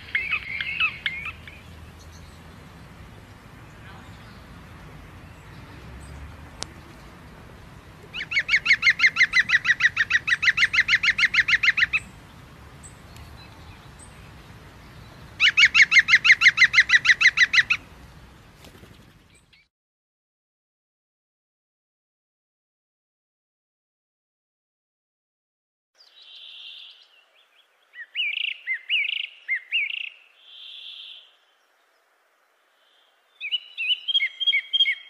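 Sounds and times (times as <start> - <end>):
bird singing rapid trill: 0.0 - 2.6, 8.2 - 12.2, 12.8 - 17.8, 26.0 - 31.3, 33.3 - 35.0.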